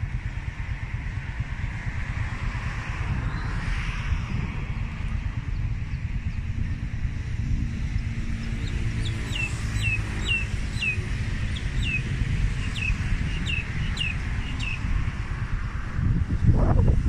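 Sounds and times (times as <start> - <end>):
wind rumble on microphone: 0.0 - 17.0
bird chirping: 8.4 - 14.9.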